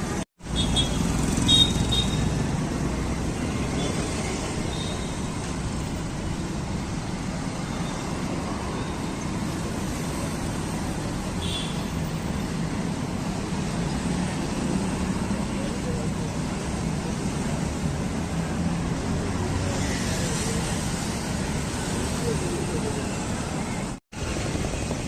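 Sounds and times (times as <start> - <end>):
road traffic noise: 0.0 - 25.0.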